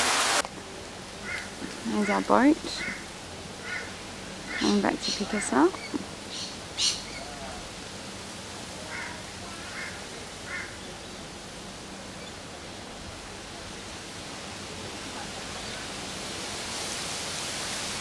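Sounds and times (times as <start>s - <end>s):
steady background hiss: 0.0s - 18.0s
faint bird calls: 1.2s - 7.6s, 8.8s - 11.0s.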